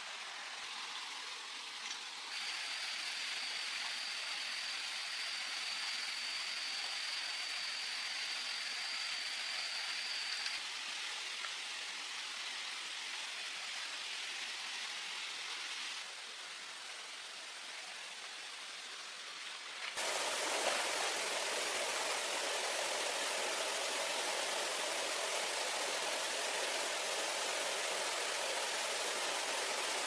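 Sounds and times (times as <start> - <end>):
jungle ambience hiss: 0.0 - 30.0
high steady whine: 20.0 - 30.0.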